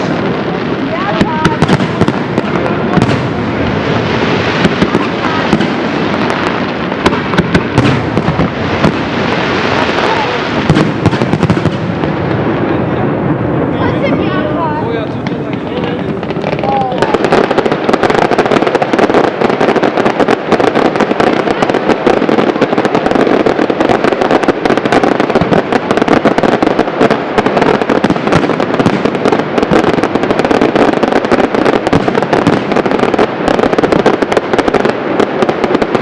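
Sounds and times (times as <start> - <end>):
fireworks bursts and crackling: 0.0 - 36.0.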